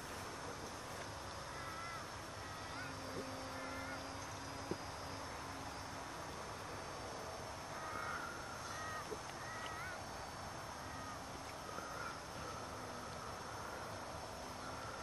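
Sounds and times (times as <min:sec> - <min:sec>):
steady outdoor hiss: 0:00.0 - 0:15.0
short bird calls: 0:01.4 - 0:04.6, 0:07.8 - 0:10.0.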